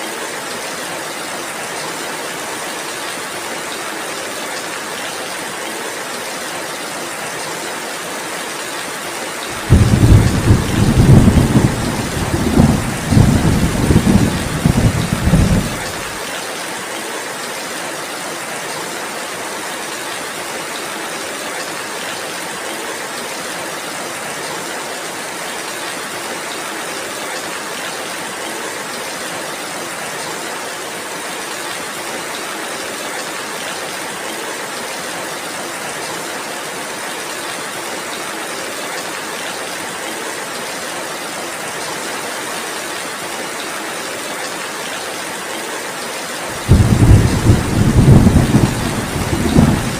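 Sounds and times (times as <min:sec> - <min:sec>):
heavy rain falling: 0:00.0 - 0:49.9
thunder rumble: 0:09.6 - 0:16.1, 0:46.6 - 0:49.9.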